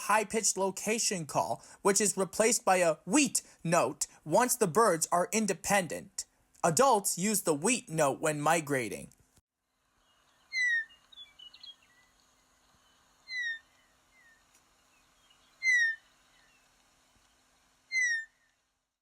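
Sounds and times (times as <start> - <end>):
meadowlark calling: 10.0 - 16.6, 17.9 - 18.4.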